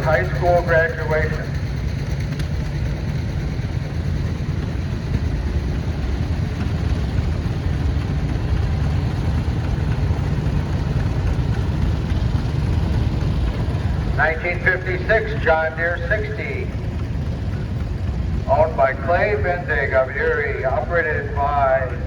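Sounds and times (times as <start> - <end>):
tractor engine rumbling: 0.0 - 22.0.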